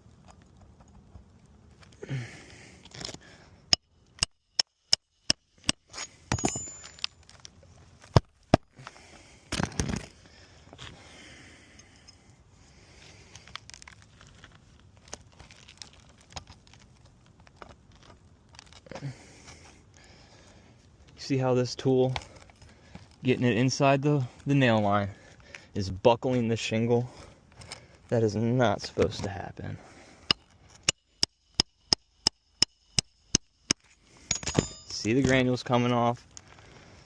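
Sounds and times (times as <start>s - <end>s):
hammer striking: 3.7s - 7.0s, 30.3s - 34.9s.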